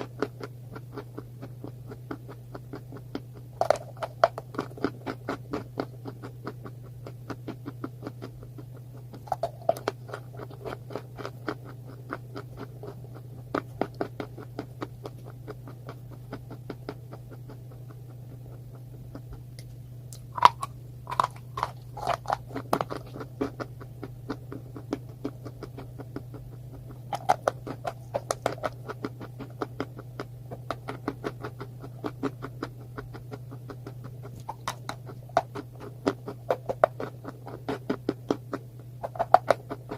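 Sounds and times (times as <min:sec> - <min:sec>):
chewing crunchy food: 0:00.0 - 0:39.9
low hum: 0:00.0 - 0:39.9.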